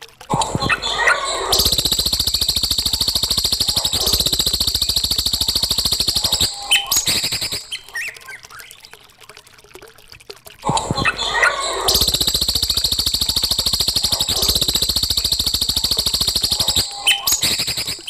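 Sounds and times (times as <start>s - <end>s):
songbird trill: 5.9s - 8.2s, 16.0s - 18.0s
songbird chirps: 5.9s - 8.9s.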